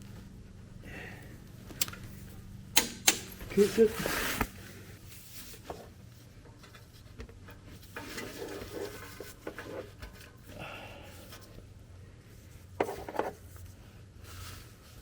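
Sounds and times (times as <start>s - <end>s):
low steady hum: 0.0s - 15.0s
tools and parts clicking: 2.7s - 3.4s.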